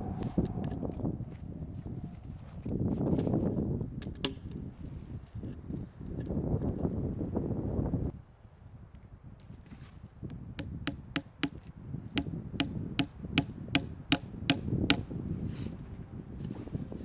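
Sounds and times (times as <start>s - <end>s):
hammer striking metal: 10.3s - 11.6s, 12.2s - 15.1s.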